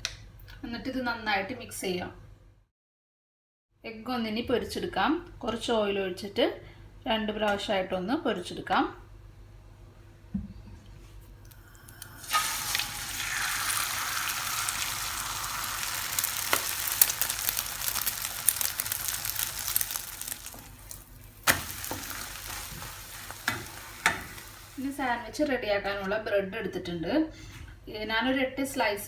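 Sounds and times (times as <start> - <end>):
egg sizzling in frying pan: 11.5 - 25.0.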